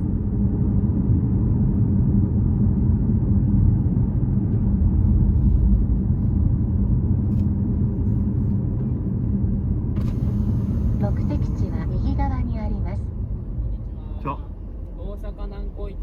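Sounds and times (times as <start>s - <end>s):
car engine rumble: 0.0s - 16.0s
road noise: 4.0s - 16.0s.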